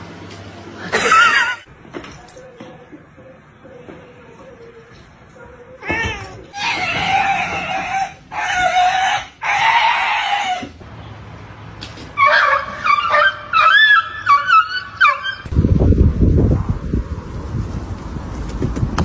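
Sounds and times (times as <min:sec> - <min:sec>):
animal yowling: 0:03.6 - 0:10.8, 0:12.2 - 0:15.5
high whines and yelps: 0:04.3 - 0:10.8, 0:12.2 - 0:15.5.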